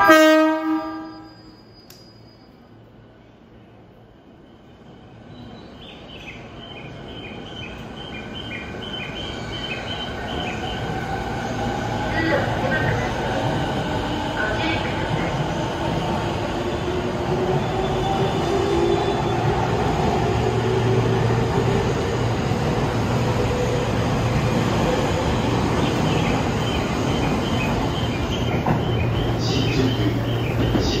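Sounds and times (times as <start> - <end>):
short high wheel squeals: 0.9 - 2.8.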